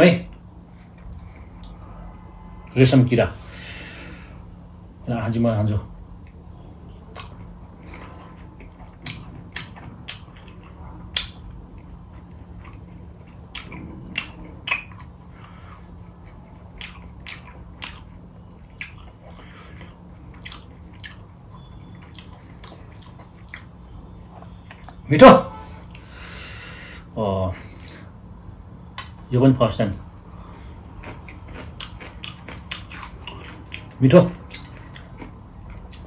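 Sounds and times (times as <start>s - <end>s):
faint steady hum: 0.0s - 36.0s
mouth chewing wet clicks: 7.1s - 23.8s, 30.8s - 36.0s.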